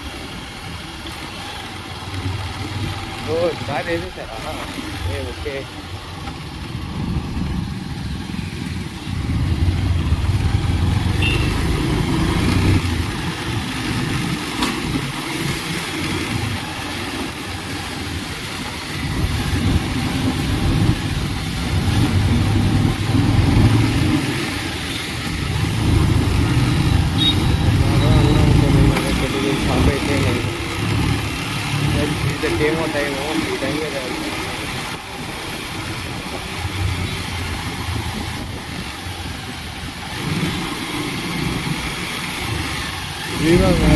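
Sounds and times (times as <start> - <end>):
road and wind noise: 0.0 - 43.9
motorbike engine running: 6.8 - 16.8.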